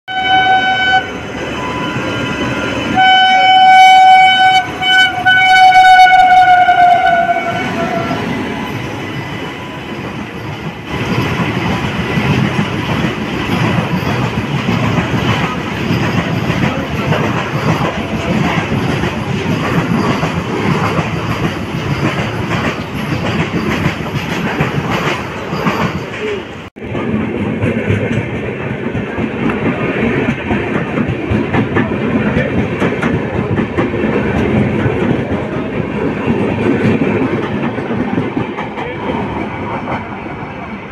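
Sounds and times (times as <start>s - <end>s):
locomotive horn blasts: 0.1s - 8.2s
train wheels clattering over joints: 10.0s - 40.5s.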